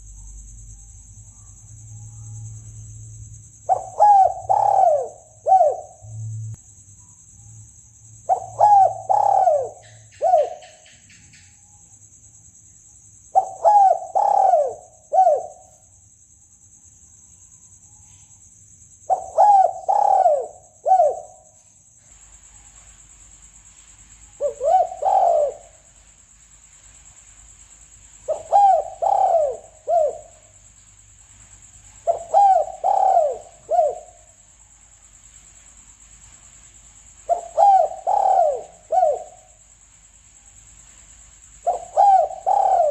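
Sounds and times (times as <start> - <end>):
dove cooing: 3.6 - 6.3, 8.2 - 10.8, 13.4 - 15.6, 19.1 - 21.4, 24.4 - 25.8, 28.2 - 30.3, 32.0 - 34.2, 37.3 - 39.5, 41.6 - 42.9.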